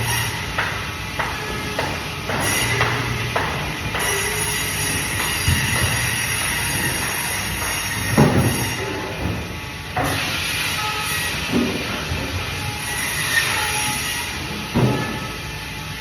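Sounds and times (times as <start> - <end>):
band saw cutting: 0.0 - 15.9.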